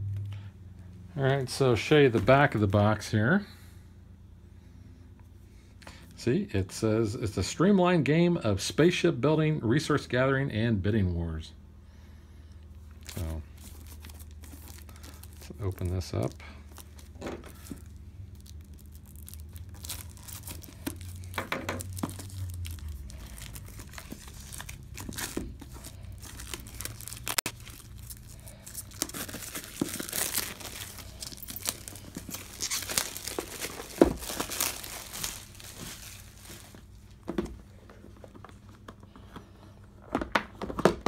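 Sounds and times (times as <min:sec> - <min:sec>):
packaging crinkling and tearing: 0:13.0 - 0:36.9.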